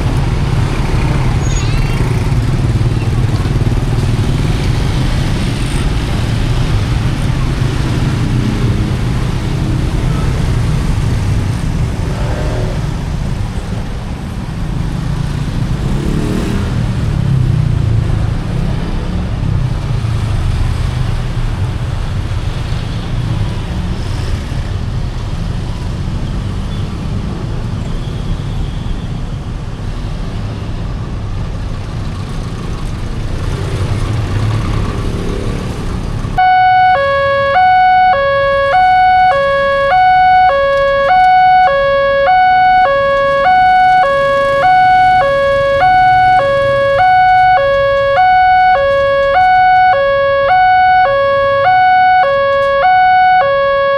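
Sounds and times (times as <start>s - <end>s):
road traffic passing: 0.0s - 53.9s
level crossing two-tone alarm: 36.4s - 53.9s.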